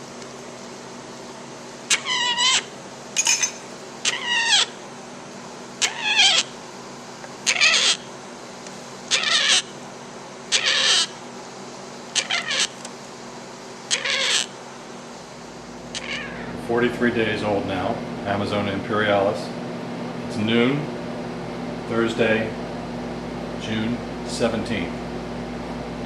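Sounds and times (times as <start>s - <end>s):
parrot chick calling harshly: 1.9s - 2.7s, 4.0s - 4.8s, 5.8s - 6.6s, 7.4s - 8.1s, 9.1s - 9.7s, 10.5s - 11.2s, 12.1s - 12.8s, 13.9s - 14.5s, 15.9s - 16.5s.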